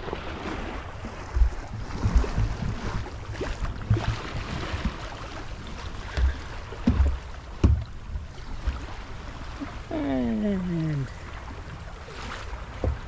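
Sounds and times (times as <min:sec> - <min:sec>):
water noise: 0:00.0 - 0:13.0
sharp knocks: 0:06.1 - 0:07.9
low thumps: 0:06.1 - 0:08.0.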